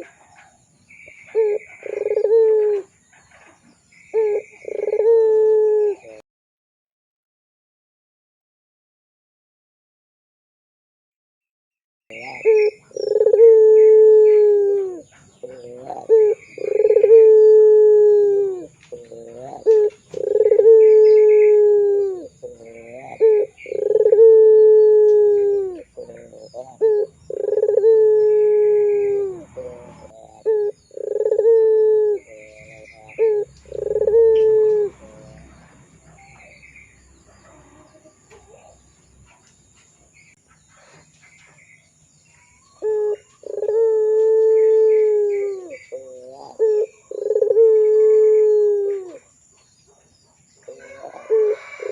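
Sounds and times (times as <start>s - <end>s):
dove cooing: 0.0s - 6.2s, 12.1s - 36.6s, 37.2s - 38.8s, 42.7s - 49.4s, 50.6s - 51.9s.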